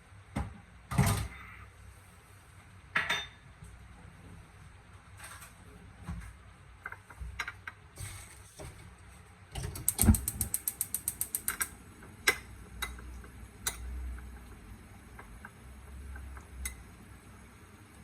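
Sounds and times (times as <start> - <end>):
ratchet-like mechanical clicks: 9.7 - 11.7.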